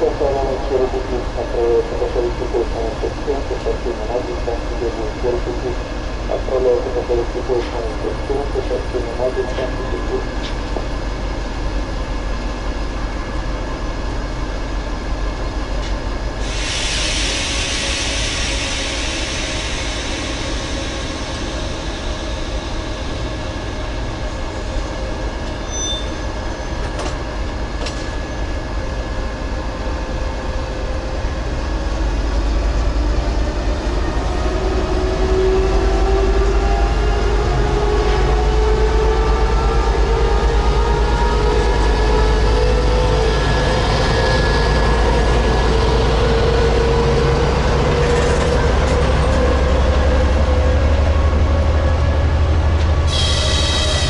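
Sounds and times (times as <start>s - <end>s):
diesel locomotive engine: 0.0s - 54.0s
air hiss: 16.4s - 22.2s.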